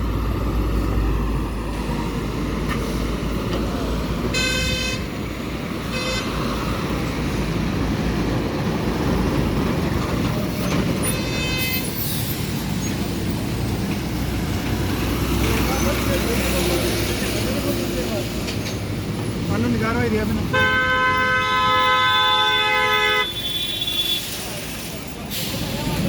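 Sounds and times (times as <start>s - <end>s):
highway traffic rumble: 0.0s - 26.0s
vehicle horn honking: 4.3s - 5.1s, 5.9s - 6.3s, 11.1s - 11.8s, 20.5s - 24.3s.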